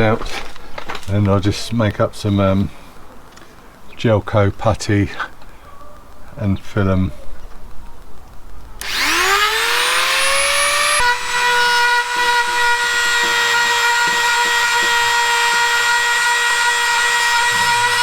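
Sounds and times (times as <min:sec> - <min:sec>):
power grinder whining: 0:08.8 - 0:18.0.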